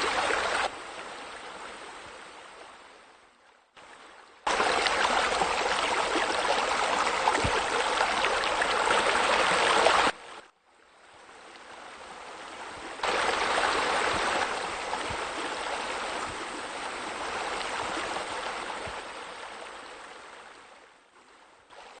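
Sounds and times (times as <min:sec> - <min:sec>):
waterfall splashing into pool: 0:04.5 - 0:10.2, 0:13.0 - 0:15.2.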